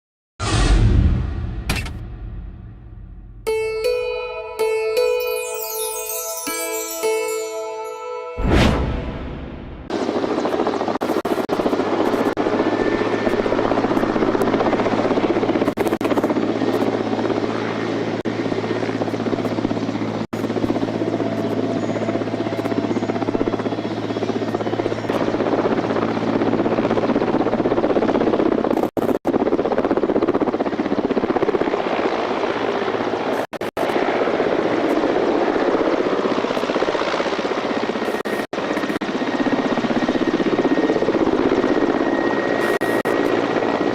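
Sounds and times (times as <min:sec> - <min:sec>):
helicopter running: 0:03.4 - 0:43.9.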